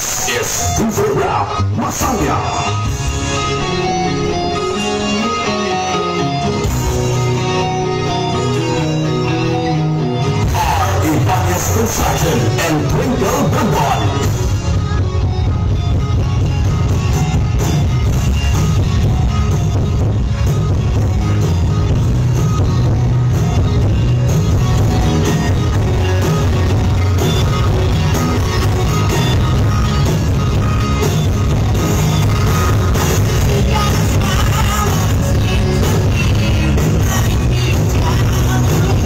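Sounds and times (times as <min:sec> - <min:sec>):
loud music with heavy bass: 0:00.0 - 0:39.0
person singing: 0:33.0 - 0:39.0.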